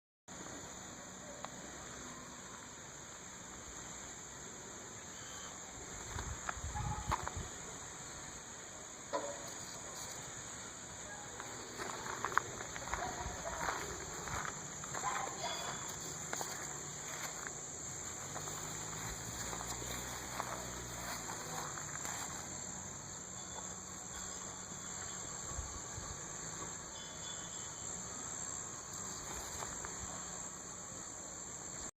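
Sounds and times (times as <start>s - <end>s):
high-pitched hiss: 0.3s - 31.9s
small car engine idling: 15.9s - 25.4s.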